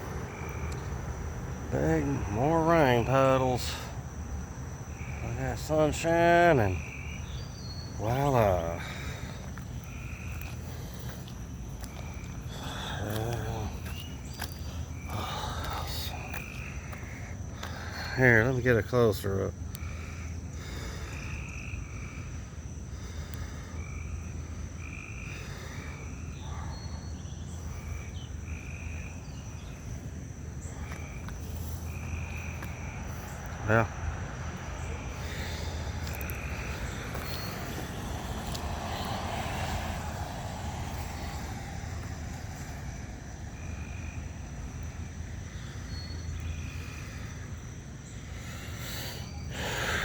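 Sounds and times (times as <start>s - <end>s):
frogs croaking: 0.0s - 50.0s
low traffic rumble: 0.0s - 50.0s.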